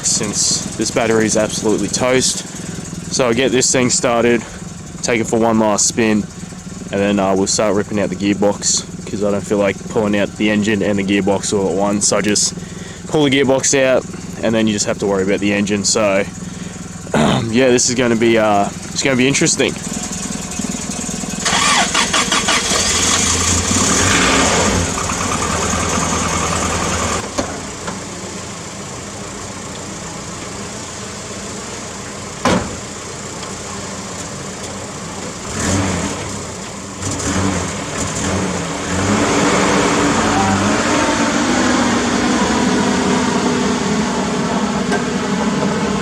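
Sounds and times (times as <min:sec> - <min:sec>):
engine revving: 0:00.0 - 0:27.2, 0:35.3 - 0:46.0
engine knock: 0:00.0 - 0:30.8
car engine cranking and idling: 0:00.0 - 0:46.0.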